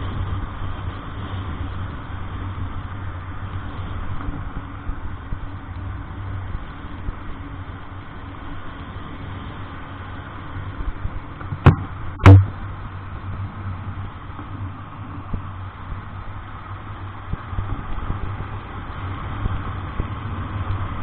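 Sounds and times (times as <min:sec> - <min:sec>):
vehicle engine humming: 0:00.0 - 0:21.0
sharp knocks: 0:11.5 - 0:12.6.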